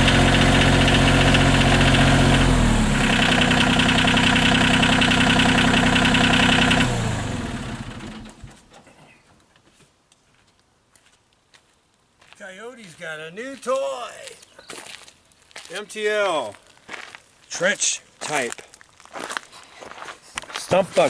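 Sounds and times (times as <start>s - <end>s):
engine idling: 0.0s - 8.7s.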